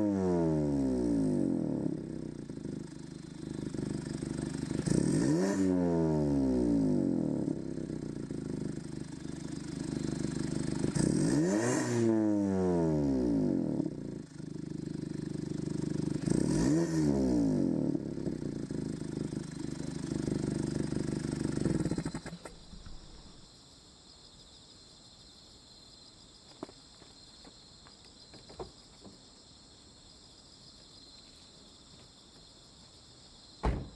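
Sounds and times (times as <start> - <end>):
car engine idling and revving: 0.0 - 23.4.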